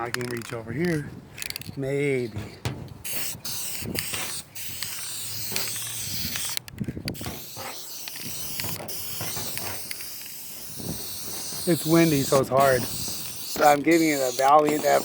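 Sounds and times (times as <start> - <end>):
wind: 0.0 - 15.0
aerosol spray can hissing: 3.0 - 6.6, 7.2 - 15.0.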